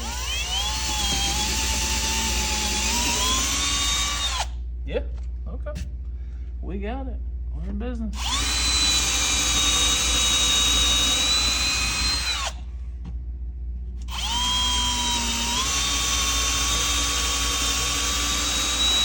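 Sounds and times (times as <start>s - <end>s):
electric drill boring into wood: 0.0s - 4.5s, 8.2s - 12.6s, 14.1s - 19.0s.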